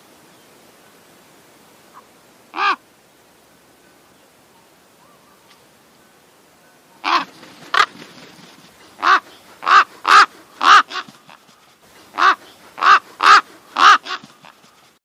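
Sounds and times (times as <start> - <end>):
crow cawing: 2.5 - 2.8, 7.0 - 7.9, 9.0 - 11.4, 12.2 - 14.6.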